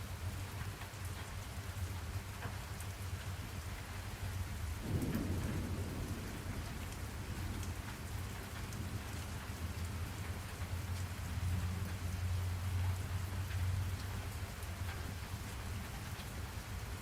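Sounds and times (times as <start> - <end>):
rain pattering: 0.0 - 17.0
distant thunder: 4.8 - 10.8.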